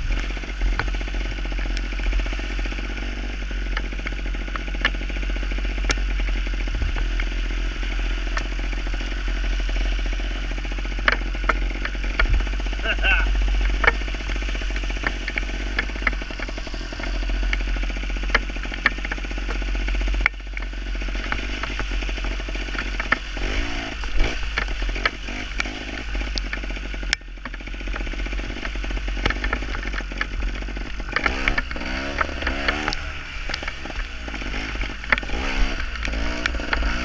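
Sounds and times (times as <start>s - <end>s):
motorcycle engine revving: 0.0s - 37.0s
steady low rumble: 0.0s - 37.0s
sharp ticks: 0.1s - 37.0s.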